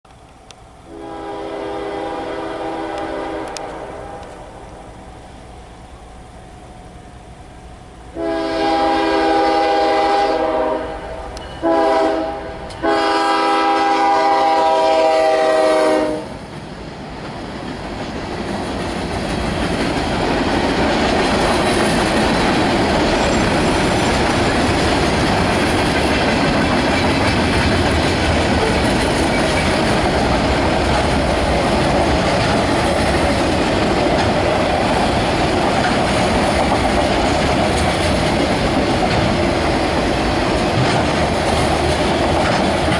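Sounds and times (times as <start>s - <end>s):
freight train wheels on rails: 0.1s - 42.9s
locomotive air horn blasts: 0.9s - 4.6s, 8.1s - 16.4s.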